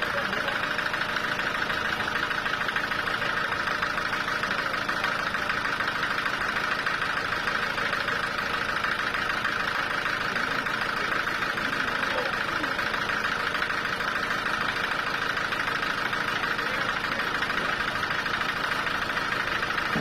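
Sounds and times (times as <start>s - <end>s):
sawmill saw running: 0.0s - 20.0s.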